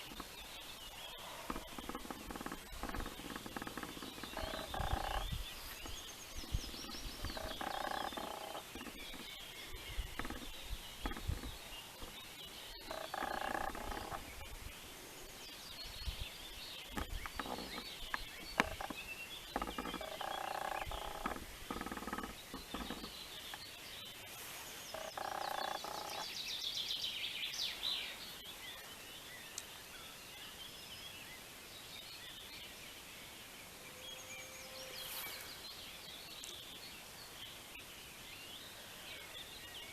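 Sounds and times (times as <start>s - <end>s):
small birds chirping: 0.0s - 33.4s
frogs croaking: 0.9s - 14.5s, 18.4s - 23.5s, 24.9s - 26.4s.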